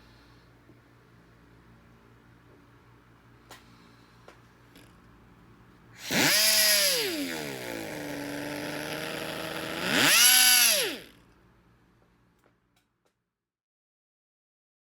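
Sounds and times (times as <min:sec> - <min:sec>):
air grinder whining: 0:06.0 - 0:11.2.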